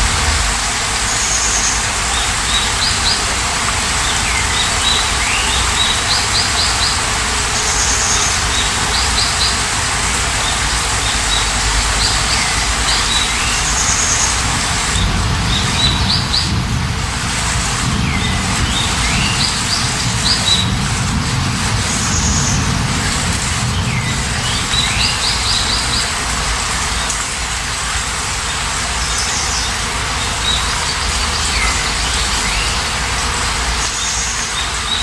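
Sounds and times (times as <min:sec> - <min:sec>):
steady rain hiss: 0:00.0 - 0:35.0
birds chirping: 0:10.4 - 0:20.9, 0:21.8 - 0:27.3.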